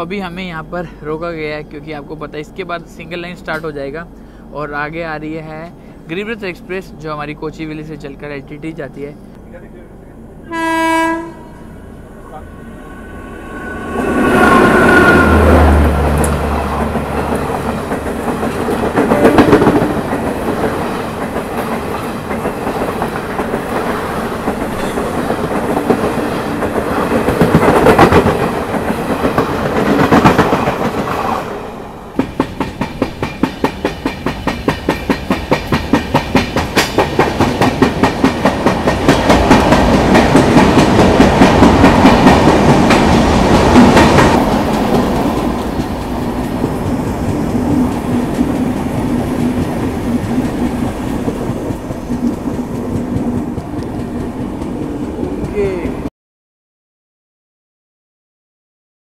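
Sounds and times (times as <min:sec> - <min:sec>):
electric locomotive hum: 0:00.0 - 0:56.1
train coaches rolling past: 0:00.0 - 0:56.1
train wheels clicking over rail joints: 0:32.2 - 0:55.6.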